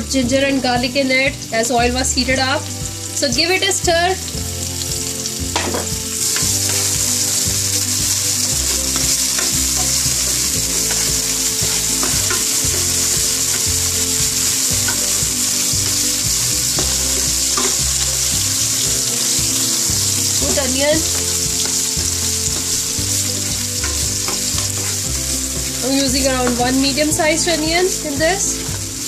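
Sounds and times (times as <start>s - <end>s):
food sizzling in hot oil: 0.0s - 29.0s
spatula scraping a pan: 5.6s - 15.7s, 19.2s - 25.4s.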